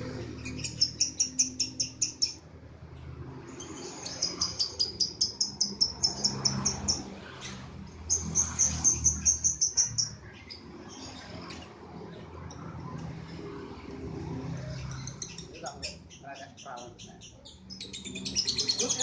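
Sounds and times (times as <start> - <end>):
lovebird chirping rapidly: 0.2 - 2.4, 3.5 - 11.4, 14.8 - 19.0.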